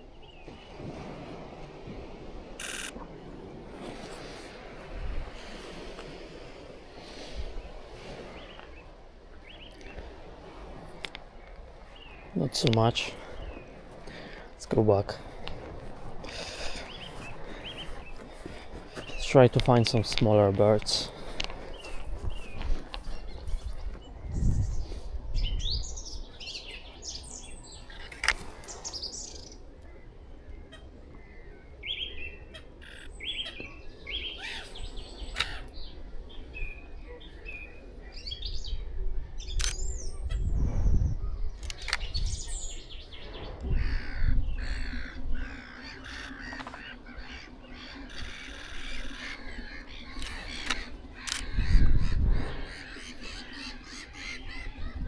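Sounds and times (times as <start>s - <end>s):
gulls calling: 0.0s - 55.0s
harsh caw-like bird calls: 11.4s - 19.8s, 25.9s - 36.4s, 41.6s - 55.0s.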